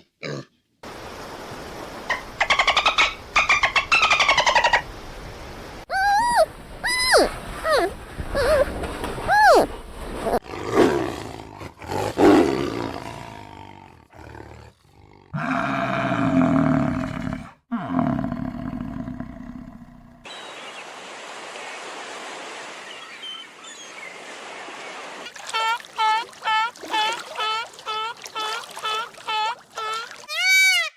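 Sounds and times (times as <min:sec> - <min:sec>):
big cat roaring and growling: 0:10.4 - 0:20.3.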